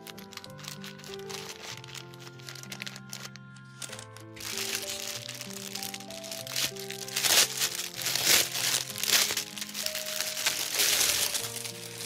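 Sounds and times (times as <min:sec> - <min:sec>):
plastic sleeve crinkling: 0:00.0 - 0:12.0
soft background music: 0:00.0 - 0:12.0.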